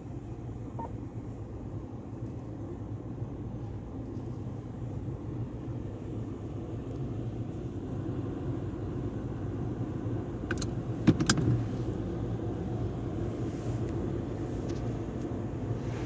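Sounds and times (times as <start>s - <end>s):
car wash equipment rumbling: 0.0s - 16.0s
sharp clicks and knocks: 10.5s - 11.6s.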